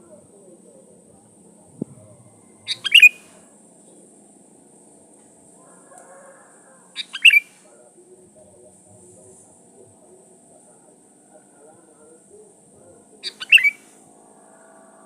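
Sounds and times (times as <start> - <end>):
bird singing: 0.0 - 4.3, 6.6 - 7.6, 10.0 - 15.0.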